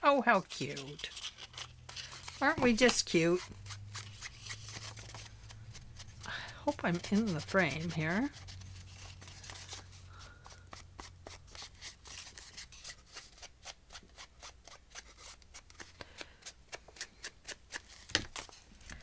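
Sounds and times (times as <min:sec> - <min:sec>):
paper clicks and rustles: 0:00.4 - 0:03.4, 0:15.2 - 0:19.0.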